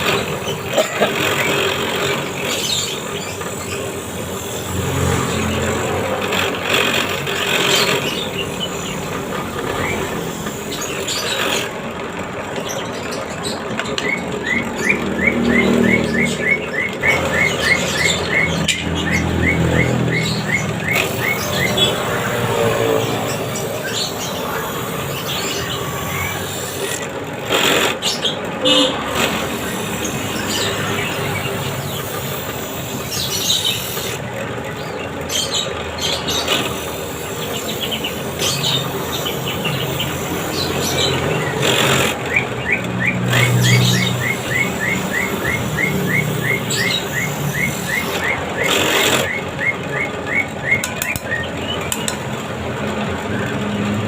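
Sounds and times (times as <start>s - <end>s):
steady background noise: 0.0s - 54.0s
bird chirping: 12.4s - 27.1s, 28.0s - 52.4s.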